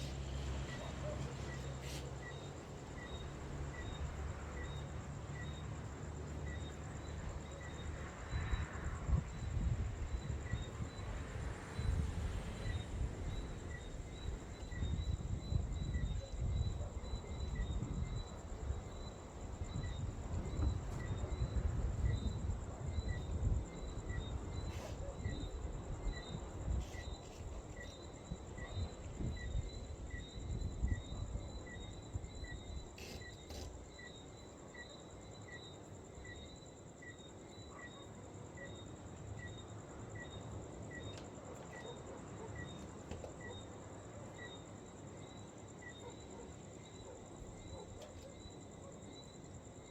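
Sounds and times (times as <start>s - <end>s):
high insect trill: 0.0s - 49.9s
wind rumbling on microphone: 8.3s - 33.3s.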